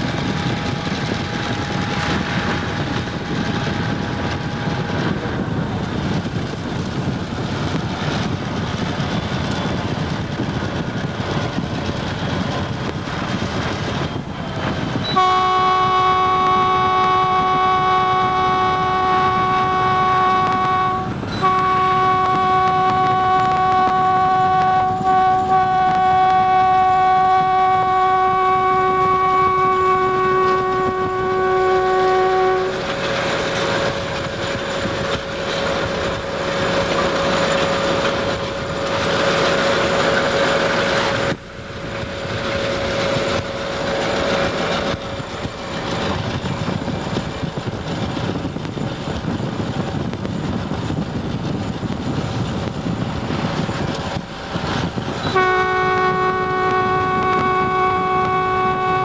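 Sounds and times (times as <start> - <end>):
train plowing through snow: 0.0 - 59.0
locomotive air horn: 15.0 - 41.4, 54.1 - 59.0.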